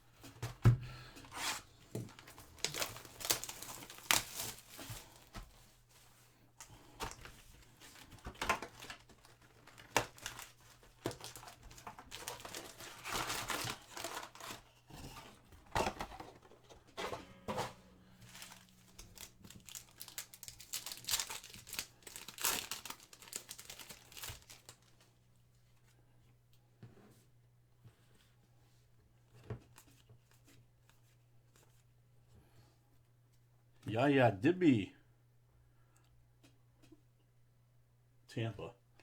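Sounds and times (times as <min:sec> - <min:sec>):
plastic wrapping crinkling and tearing: 0:02.0 - 0:05.4, 0:07.0 - 0:15.2, 0:17.9 - 0:25.1.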